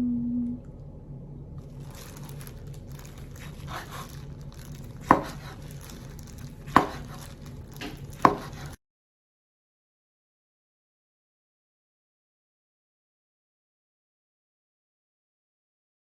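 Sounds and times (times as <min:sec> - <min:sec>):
low steady hum: 0:00.0 - 0:08.8
knife knocking on cutting board: 0:08.2 - 0:08.6.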